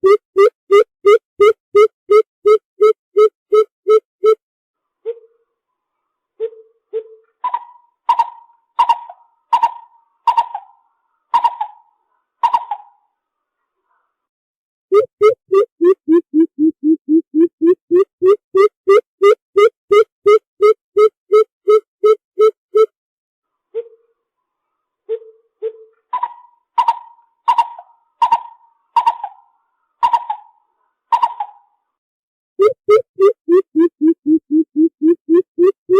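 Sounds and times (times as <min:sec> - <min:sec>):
bird calling low and high notes: 0:14.9 - 0:22.9, 0:32.6 - 0:35.9.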